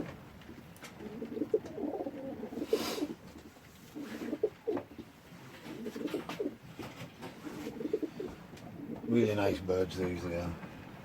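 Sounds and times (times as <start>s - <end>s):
pigeons cooing: 0.9s - 6.7s, 7.3s - 9.3s.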